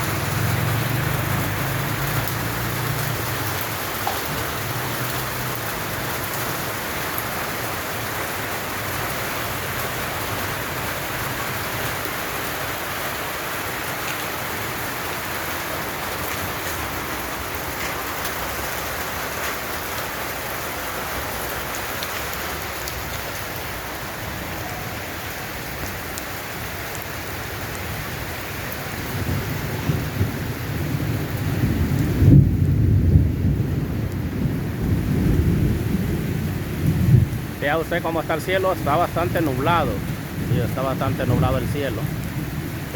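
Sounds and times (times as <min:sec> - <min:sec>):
rain falling: 0:00.0 - 0:42.9
low rumble of thunder: 0:28.8 - 0:37.6.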